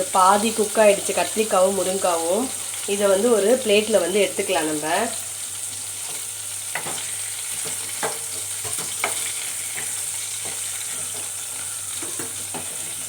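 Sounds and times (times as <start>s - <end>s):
vegetables sizzling in oil: 0.0s - 13.0s
spatula scraping pan: 6.0s - 13.0s.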